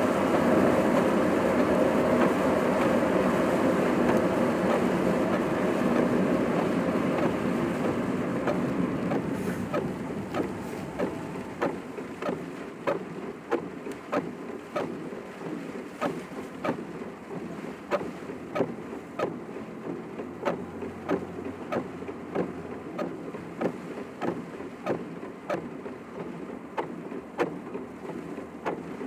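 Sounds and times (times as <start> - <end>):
car interior road noise: 0.0 - 29.0
short regular clicks: 17.9 - 29.0.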